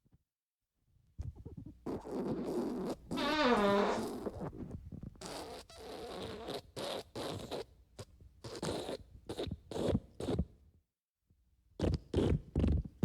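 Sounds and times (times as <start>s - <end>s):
raspy sputtering farts: 1.9s - 4.5s.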